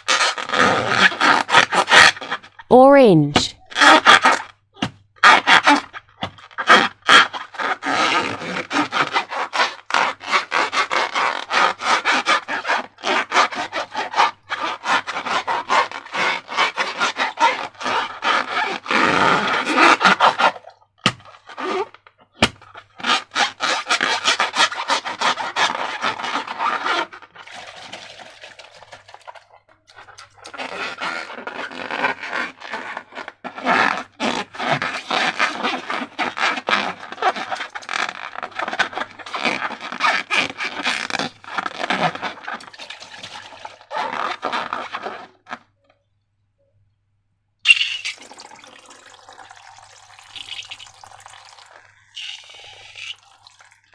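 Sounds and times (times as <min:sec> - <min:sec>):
wet slime squishing: 0:50.2 - 0:53.9.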